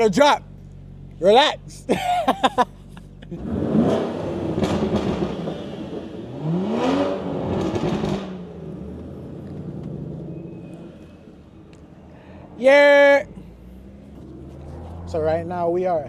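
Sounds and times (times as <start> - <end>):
car engine revving hard: 3.3 - 11.6, 12.3 - 15.8.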